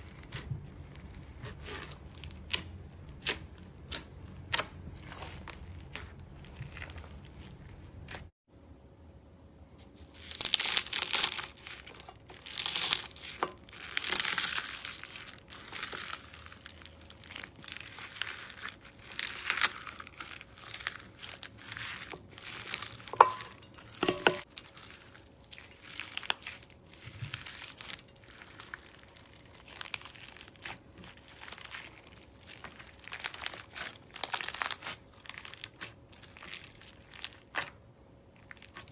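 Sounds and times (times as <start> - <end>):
crunchy slime squeezed by hand: 10.1 - 23.1, 24.4 - 37.8.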